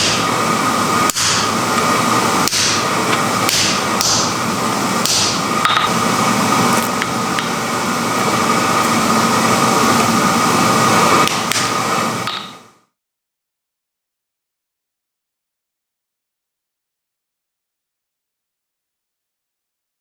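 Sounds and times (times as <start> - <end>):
forge blower whooshing and humming: 0.0 - 12.8.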